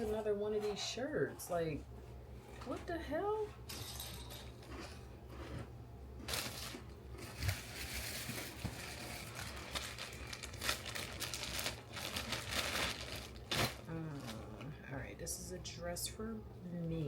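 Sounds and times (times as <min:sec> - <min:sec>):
plastic packaging crinkling: 0:06.2 - 0:14.8.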